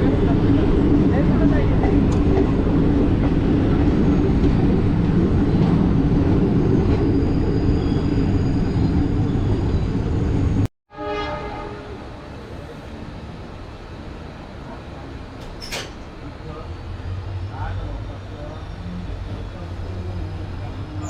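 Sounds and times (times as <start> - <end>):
train coaches rumbling: 0.0 - 10.7, 11.5 - 21.0.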